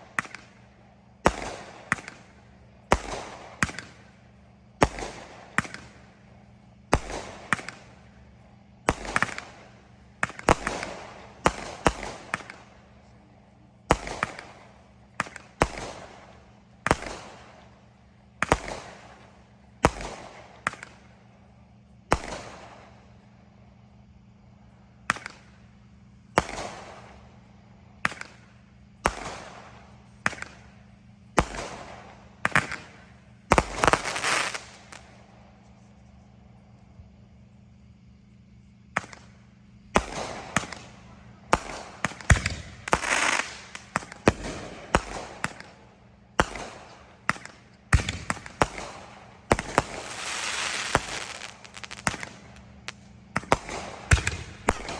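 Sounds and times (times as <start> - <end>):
fireworks bangs: 8.8 - 12.8, 13.9 - 17.7, 18.4 - 21.1, 28.0 - 35.3, 38.9 - 54.9.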